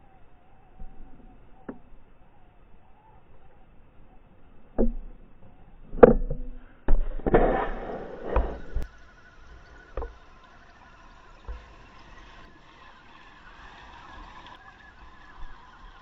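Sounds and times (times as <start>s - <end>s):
faint steady whine: 0.0s - 16.0s
rough scraping: 6.9s - 8.9s.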